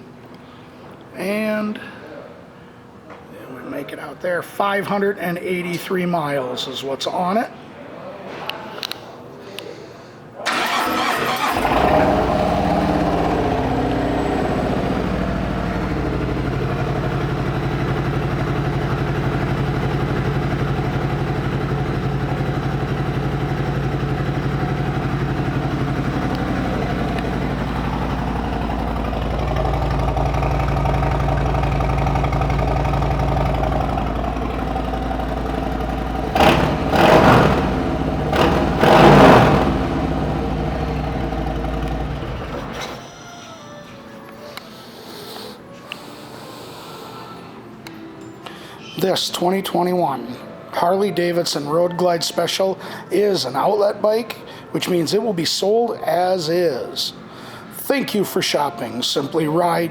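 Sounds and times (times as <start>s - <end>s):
motorcycle throttle blips: 10.5s - 42.9s
motorcycle engine idling: 10.5s - 43.0s.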